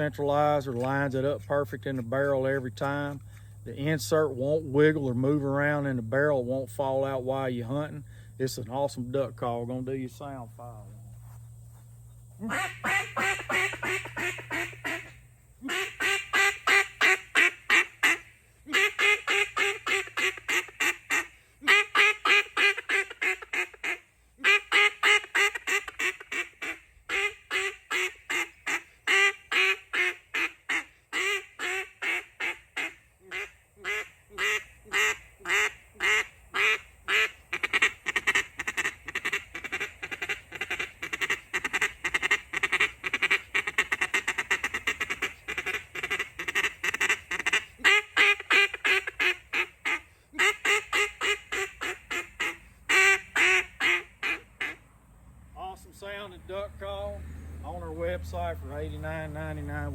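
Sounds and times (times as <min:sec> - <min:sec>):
duck call quacks: 0:12.4 - 0:54.8.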